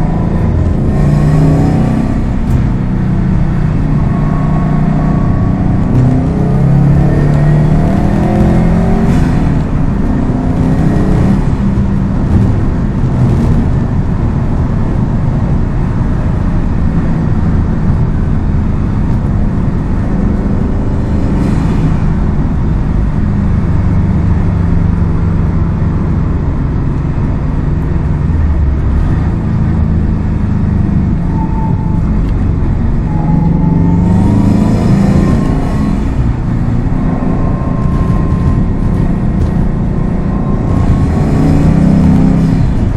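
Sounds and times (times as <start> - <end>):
car engine and exhaust: 0.0 - 42.9.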